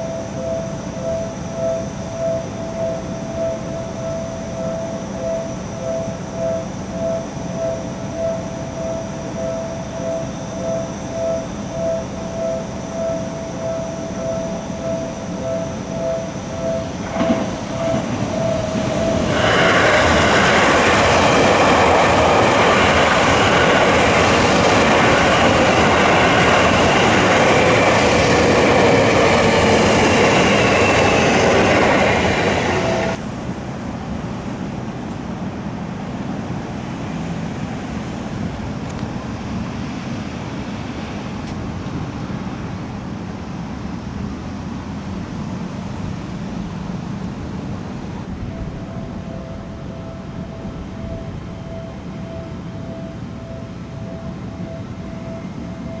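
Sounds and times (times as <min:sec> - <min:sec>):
electronic crossing warning bell: 0:00.0 - 0:33.2, 0:48.3 - 0:56.0
electric train passing: 0:00.0 - 0:56.0
steady background hum: 0:00.0 - 0:56.0.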